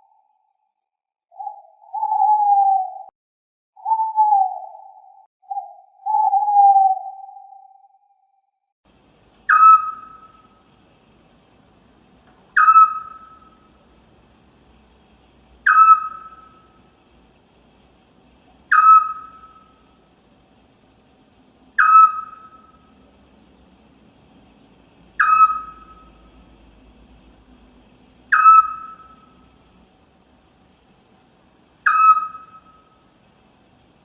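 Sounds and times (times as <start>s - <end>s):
owl whistled call: 1.3s - 3.1s, 3.8s - 8.0s, 9.5s - 10.5s, 12.6s - 13.7s, 15.6s - 16.8s, 18.7s - 19.9s, 21.8s - 22.9s, 25.2s - 26.2s, 28.3s - 29.3s, 31.8s - 33.0s.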